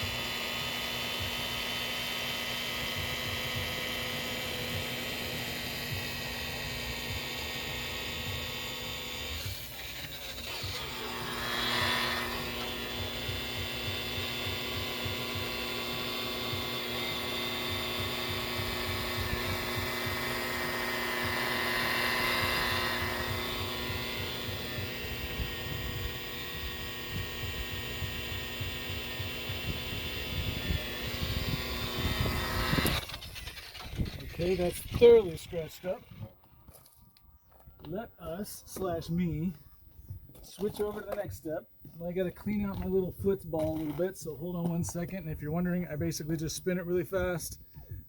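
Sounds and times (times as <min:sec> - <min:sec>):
power tool motor whine: 0:00.0 - 0:37.9.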